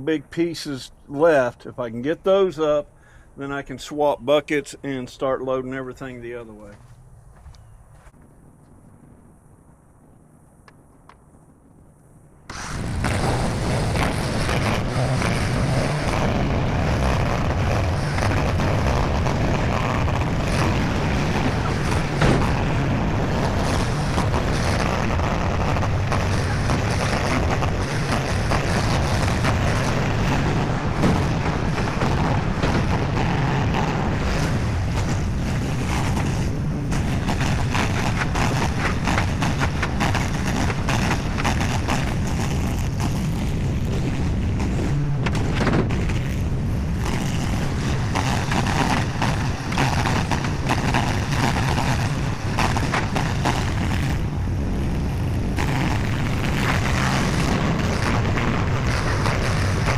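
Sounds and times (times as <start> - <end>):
skid steer engine running hard: 12.5 - 59.9.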